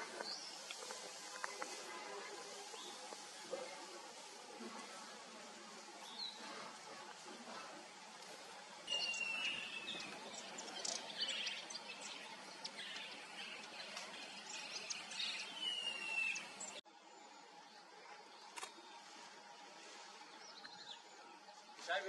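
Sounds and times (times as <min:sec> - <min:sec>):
small birds chipping and trilling: 0:00.0 - 0:16.8
faint steady hiss: 0:00.0 - 0:22.0.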